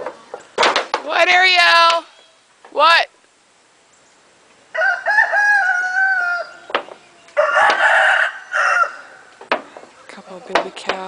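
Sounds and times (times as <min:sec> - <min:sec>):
rooster crowing: 0:04.7 - 0:09.4.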